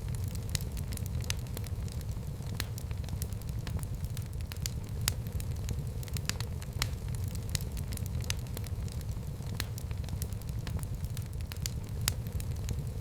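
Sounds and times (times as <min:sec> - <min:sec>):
fire snapping: 0:00.0 - 0:13.0
flames rumbling: 0:00.0 - 0:13.0.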